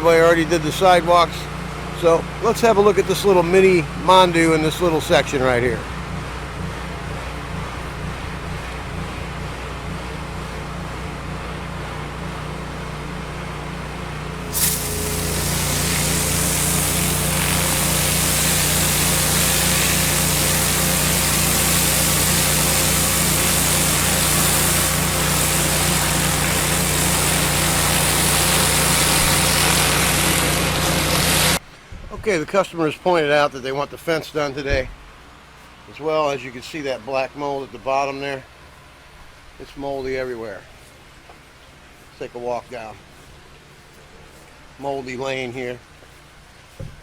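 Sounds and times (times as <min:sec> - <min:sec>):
pressure washer engine running: 0:00.1 - 0:31.6
water jet spray hissing: 0:14.4 - 0:31.6.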